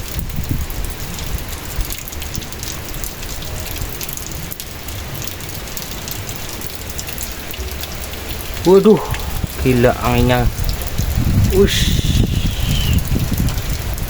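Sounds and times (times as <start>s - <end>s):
rain: 0.0s - 14.0s
strong wind blowing: 8.6s - 14.0s.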